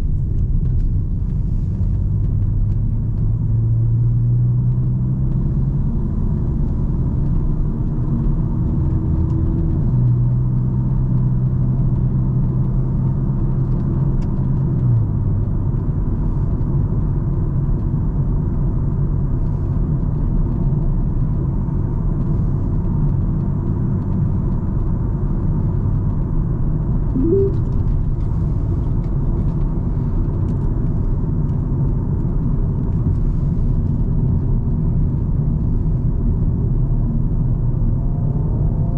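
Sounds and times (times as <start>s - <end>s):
car engine and tyres rumbling: 0.0s - 38.9s
short rising chirp: 27.2s - 27.6s.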